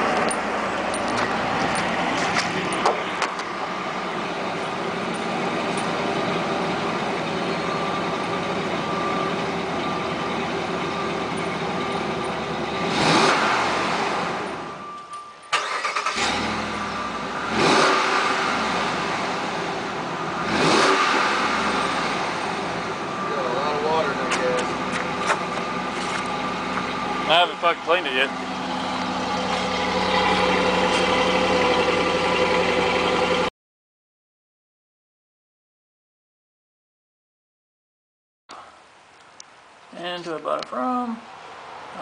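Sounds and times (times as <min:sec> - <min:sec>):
truck engine idling and revving: 0:00.0 - 0:33.5.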